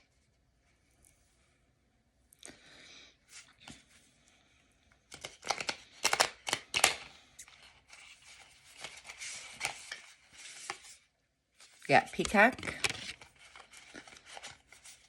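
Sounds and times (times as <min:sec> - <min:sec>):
cards rustling: 0:05.0 - 0:15.0
cards snapping: 0:05.1 - 0:07.1.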